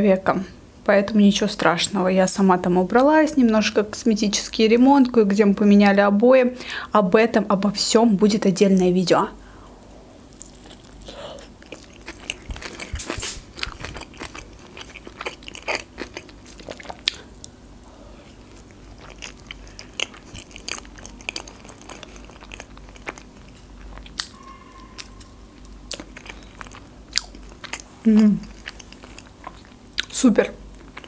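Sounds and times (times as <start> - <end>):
wet chewing clicks: 10.4 - 17.5, 18.4 - 24.4.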